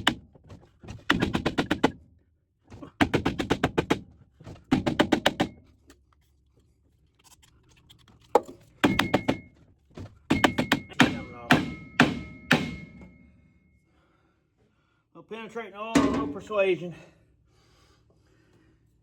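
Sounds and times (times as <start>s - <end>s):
metal-on-metal clattering: 16.0s - 16.5s.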